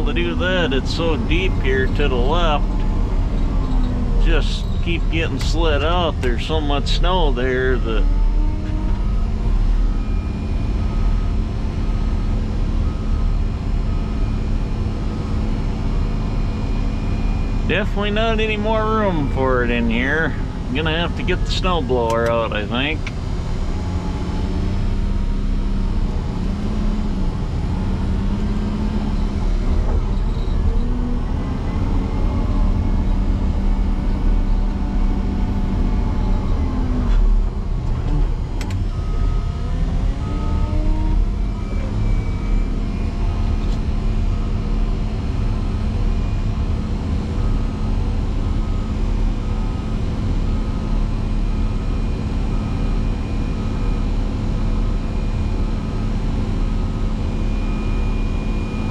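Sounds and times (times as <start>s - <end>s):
diesel engine running hard: 0.0s - 58.9s
beeping alarm: 38.8s - 44.7s.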